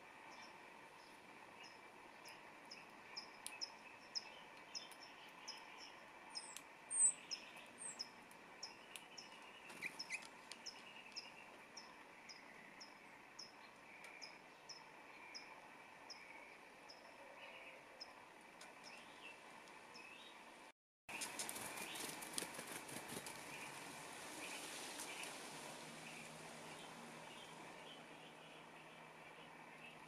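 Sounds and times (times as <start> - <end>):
small birds chipping: 0.0 - 30.0
bright bird chirps: 0.3 - 18.2.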